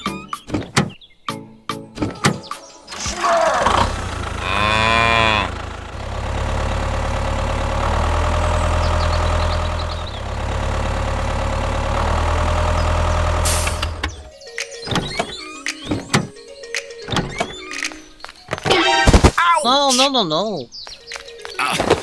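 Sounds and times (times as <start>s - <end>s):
engine running: 2.9s - 14.3s
cow mooing: 3.3s - 5.6s.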